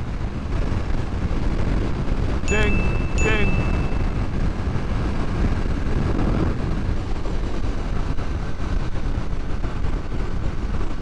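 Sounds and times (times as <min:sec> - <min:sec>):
wind rush over microphone: 0:03.8 - 0:11.0.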